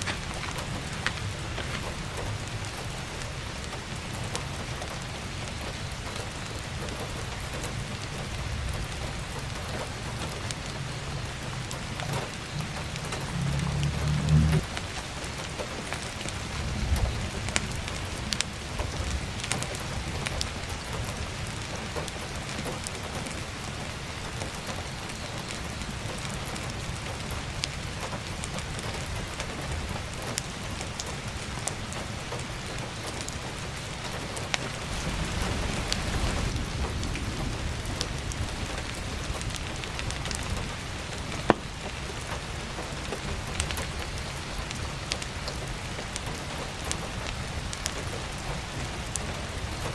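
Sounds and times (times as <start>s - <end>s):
firewood crackling and popping: 0.0s - 49.9s
heavy rain falling: 0.0s - 49.9s
low rumble: 10.9s - 15.0s.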